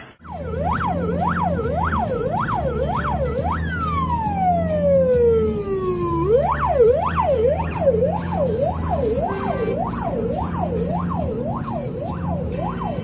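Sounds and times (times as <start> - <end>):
emergency siren yelp and wail: 0.2 - 13.0.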